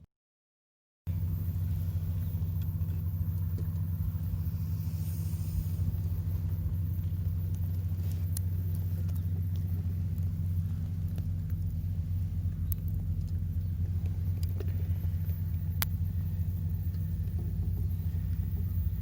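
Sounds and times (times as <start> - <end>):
car engine rumbling: 1.1 - 19.0
faint ticks: 5.6 - 19.0.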